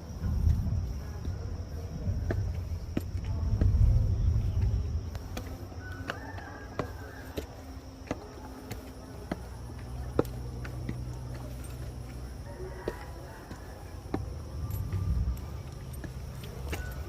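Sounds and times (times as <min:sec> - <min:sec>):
insects shrilling: 0:00.0 - 0:17.0.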